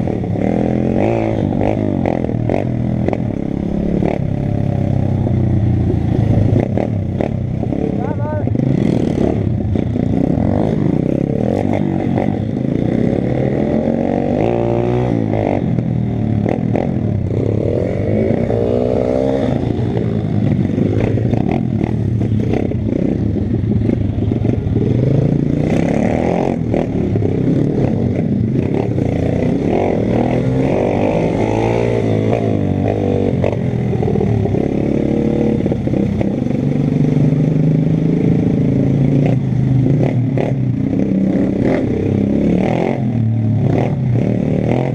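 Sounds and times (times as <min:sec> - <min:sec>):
pit bike engine revving: 0:00.0 - 0:44.9.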